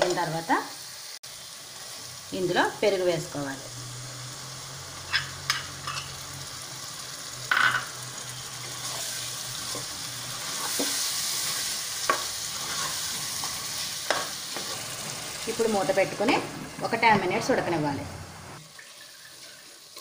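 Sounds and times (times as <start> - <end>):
food sizzling in hot oil: 0.0 - 20.0
steel spoon scraping a pan: 5.0 - 6.2, 8.7 - 14.8.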